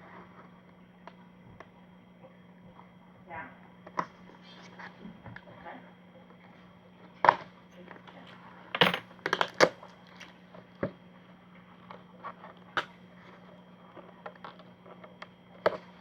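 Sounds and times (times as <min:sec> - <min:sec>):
packaging clicking and snapping: 0:09.3 - 0:10.3.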